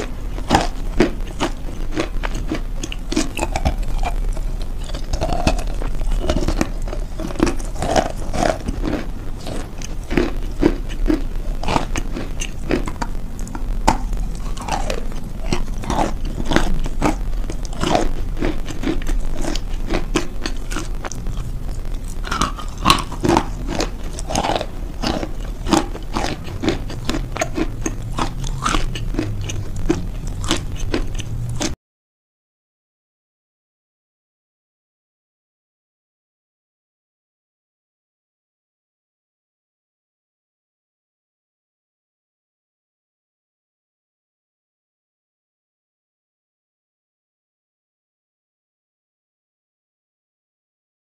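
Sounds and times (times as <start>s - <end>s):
chewing and crunching food: 0.0s - 31.8s
steady low hum: 0.0s - 31.8s.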